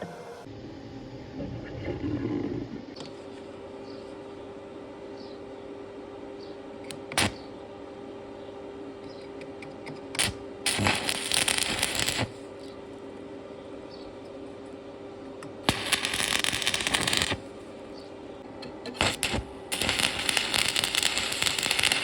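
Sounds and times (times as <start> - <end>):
electrical hum: 0.0 - 22.0
welding arc crackling: 7.2 - 7.4, 10.2 - 12.4, 15.6 - 17.5, 18.9 - 22.0.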